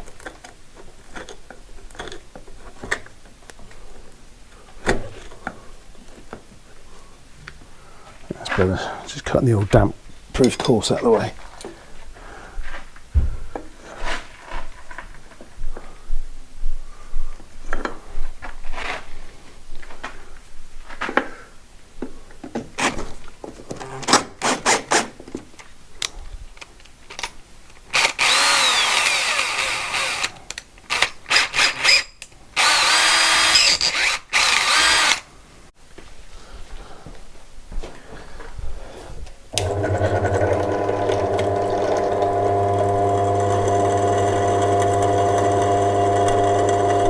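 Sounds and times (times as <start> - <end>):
power tool motor cutting: 28.0 - 35.3, 39.6 - 47.0.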